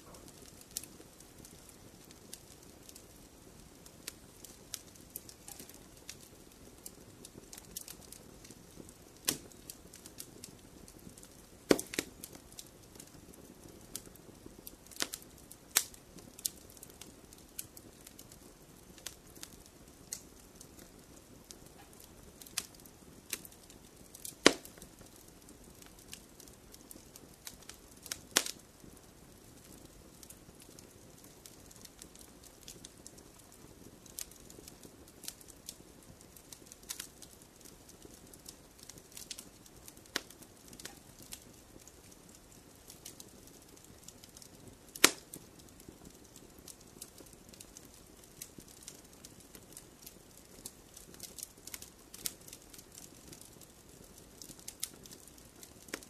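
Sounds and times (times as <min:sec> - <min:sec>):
fire crackling and popping: 0:00.0 - 0:56.0
low rumble of flames: 0:00.0 - 0:56.0.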